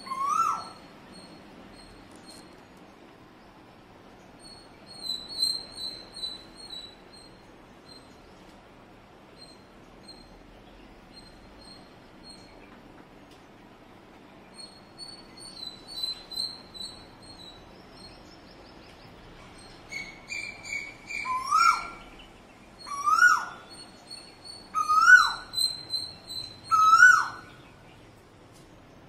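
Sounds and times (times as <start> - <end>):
thin high bird chirps: 4.3 - 8.4, 14.5 - 28.0.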